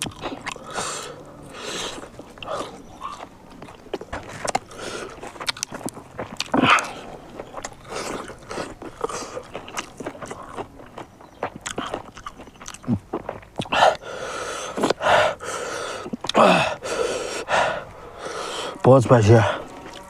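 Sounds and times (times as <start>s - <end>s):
person chewing and biting: 0.0s - 15.1s.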